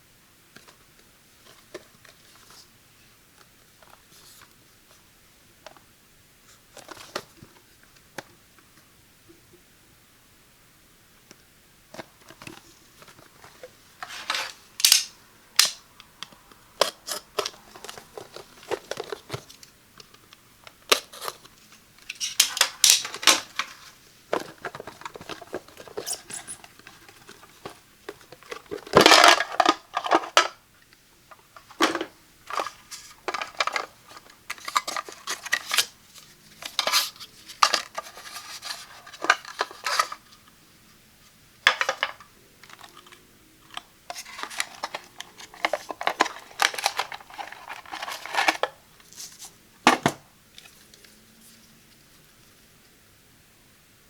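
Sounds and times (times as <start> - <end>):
packaging rustling: 16.8 - 20.2, 20.8 - 30.6, 31.6 - 40.4, 41.6 - 49.5.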